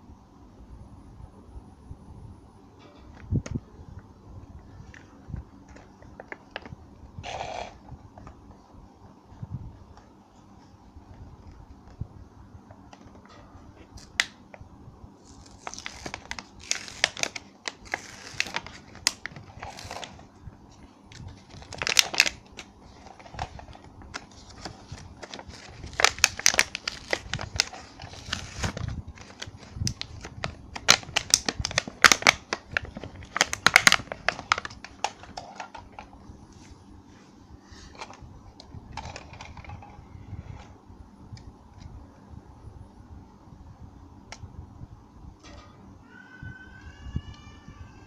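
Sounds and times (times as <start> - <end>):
crinkly packaging rustling: 15.2 - 36.8, 38.9 - 40.0.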